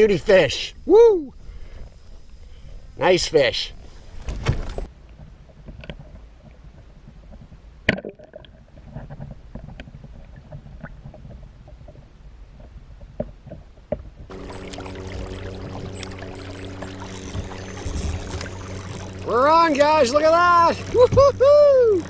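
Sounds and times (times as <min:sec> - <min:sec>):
steady hum with pitched tones: 0:00.0 - 0:04.9, 0:14.3 - 0:22.0.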